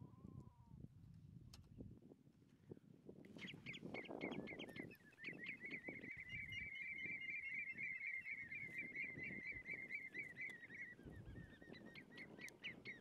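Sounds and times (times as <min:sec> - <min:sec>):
bird chirping fast: 0:03.4 - 0:13.0.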